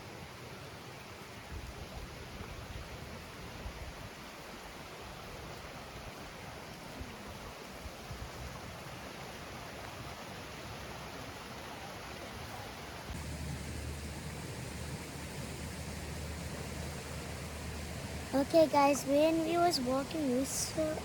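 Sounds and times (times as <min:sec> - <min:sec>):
steady rain hissing: 0:00.0 - 0:21.0
faint water drips: 0:11.3 - 0:21.0
low steady rumble: 0:13.1 - 0:21.0.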